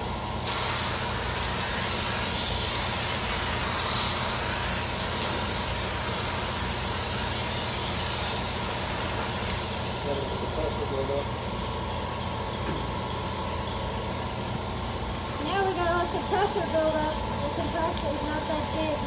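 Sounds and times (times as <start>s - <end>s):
steady low hum: 0.0s - 19.0s
paint spray gun hissing: 0.1s - 19.0s.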